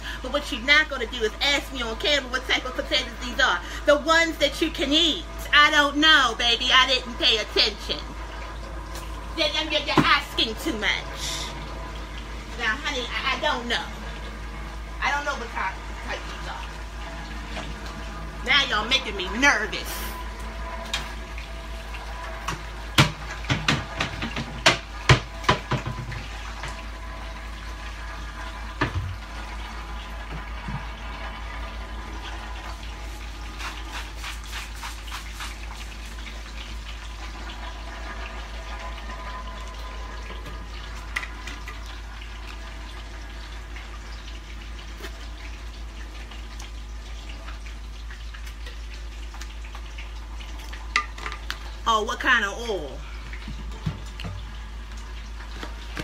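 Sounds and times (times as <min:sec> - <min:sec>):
potatoes sizzling in a pan: 0:14.8 - 0:56.0.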